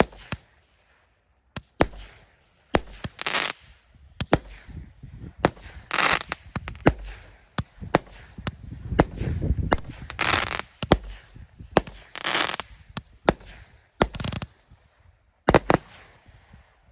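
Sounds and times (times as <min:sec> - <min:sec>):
fireworks bangs: 0:00.0 - 0:00.5, 0:01.6 - 0:14.8, 0:15.5 - 0:16.3
crackling hissing bursts: 0:01.8 - 0:14.6.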